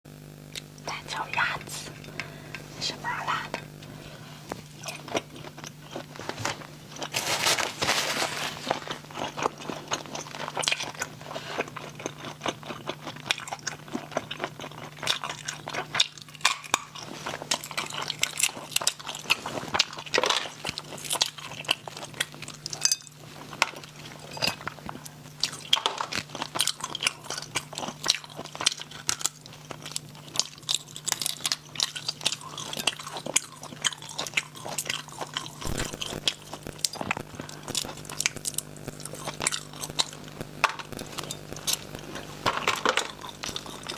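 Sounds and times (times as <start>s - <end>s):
faint low hum: 0.1s - 43.9s
person crunching and chewing: 0.5s - 43.9s.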